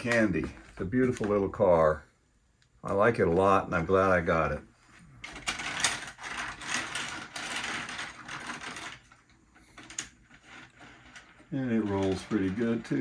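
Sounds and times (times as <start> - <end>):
model train car wheels rattling: 5.2 - 13.0.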